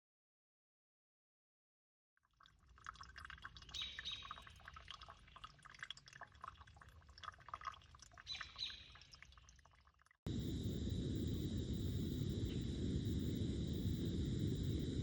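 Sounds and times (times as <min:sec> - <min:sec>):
low steady rumble: 0:10.3 - 0:15.0.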